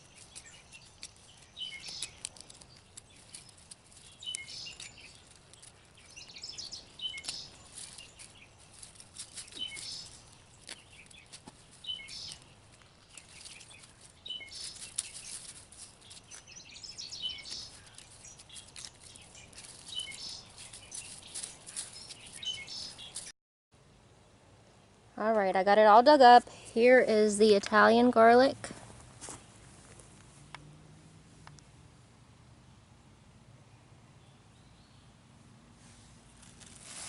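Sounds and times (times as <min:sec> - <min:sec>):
rustling and scraping of digging: 0:00.0 - 0:23.3, 0:26.2 - 0:30.6, 0:35.7 - 0:37.0
songbird singing: 0:00.0 - 0:23.3, 0:24.1 - 0:35.5.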